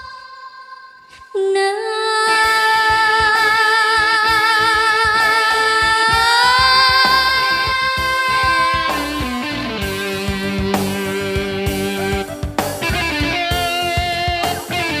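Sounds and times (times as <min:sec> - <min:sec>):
woman singing with vibrato: 0:00.0 - 0:11.2
pop band playing: 0:02.3 - 0:15.0
drums: 0:02.4 - 0:15.0.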